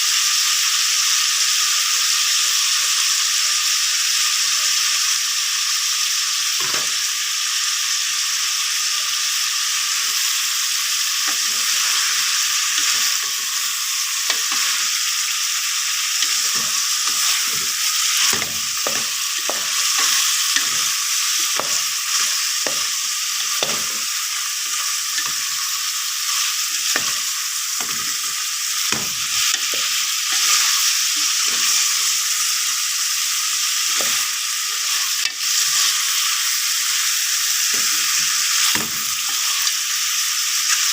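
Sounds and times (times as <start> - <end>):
food sizzling in hot oil: 0.0 - 40.9
utensil scraping and knocking pan: 16.2 - 20.9.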